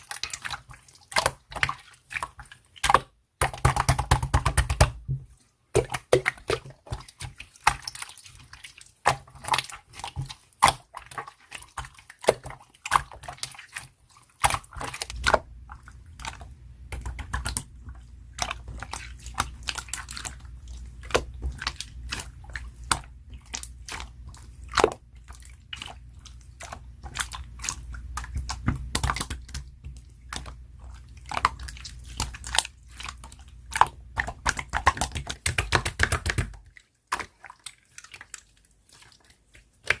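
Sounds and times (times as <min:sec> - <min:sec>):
slime squished by hand: 0:05.7 - 0:40.0
low steady hum: 0:14.4 - 0:36.8.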